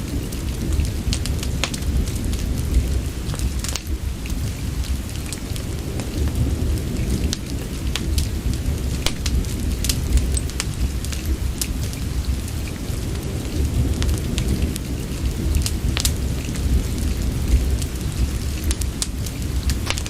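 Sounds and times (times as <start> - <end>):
soft rain: 0.0 - 20.0
wood fire crackling: 0.0 - 20.0
deep low rumble: 0.5 - 5.1, 6.2 - 11.6.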